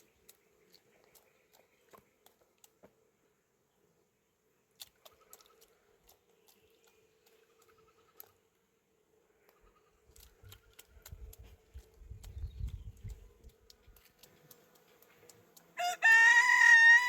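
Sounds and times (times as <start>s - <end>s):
faint clicks: 9.4s - 15.8s.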